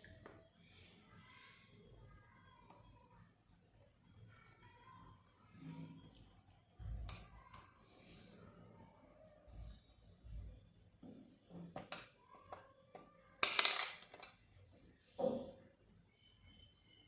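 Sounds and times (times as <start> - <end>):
painting tools clinking and rattling: 11.6 - 14.5.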